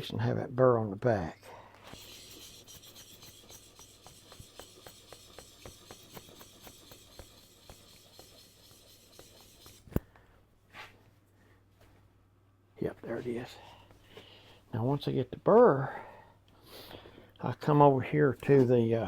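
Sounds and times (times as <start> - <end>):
chisel scraping on sharpening stone: 1.9 - 10.0.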